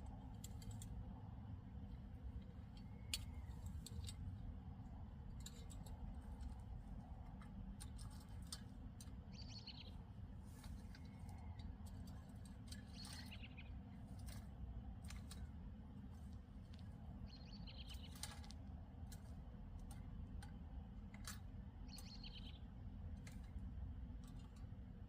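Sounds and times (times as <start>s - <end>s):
small clicks and ticks: 0.0s - 25.0s
bird chirping: 9.2s - 10.1s, 10.7s - 14.4s, 17.1s - 18.5s, 21.8s - 22.8s.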